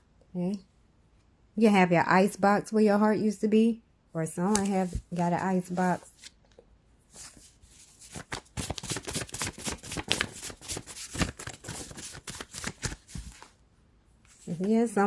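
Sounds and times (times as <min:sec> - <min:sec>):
cards being shuffled: 0:04.5 - 0:06.4, 0:07.1 - 0:13.5.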